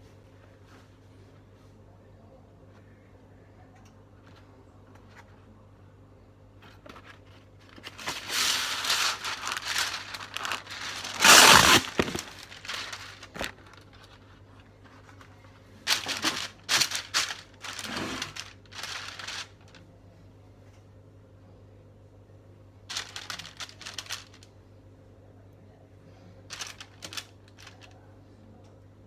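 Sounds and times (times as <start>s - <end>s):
wrapping crumpling: 7.0s - 14.2s, 14.9s - 19.8s, 22.9s - 24.5s, 26.5s - 28.0s.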